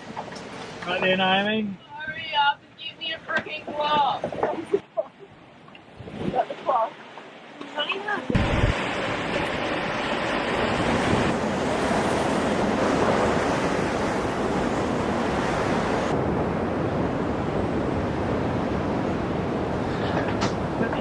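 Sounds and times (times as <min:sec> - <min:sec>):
sea rushing along a hull: 0:03.5 - 0:21.0
wind buffeting microphone: 0:08.2 - 0:21.0.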